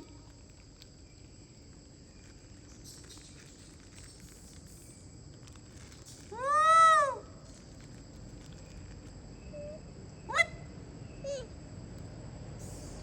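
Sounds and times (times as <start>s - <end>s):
faint rustling and ticks: 0.0s - 6.4s, 7.4s - 9.2s
high insect drone: 0.0s - 13.0s.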